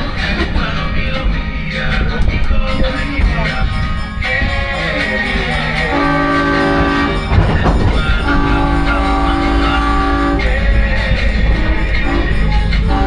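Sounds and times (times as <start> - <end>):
train rumbling: 0.0 - 13.0
train horn blasts: 5.7 - 13.0.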